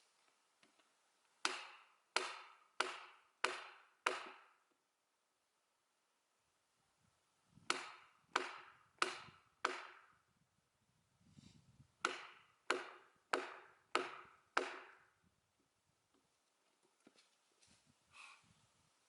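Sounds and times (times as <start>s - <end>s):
hammer striking splitting wedge: 1.4s - 4.6s, 7.7s - 10.1s, 12.0s - 15.0s.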